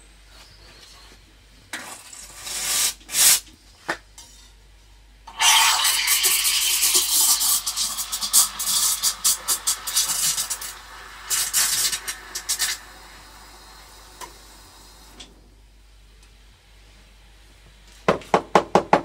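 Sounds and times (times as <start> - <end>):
steam wand hissing: 5.3 - 15.2.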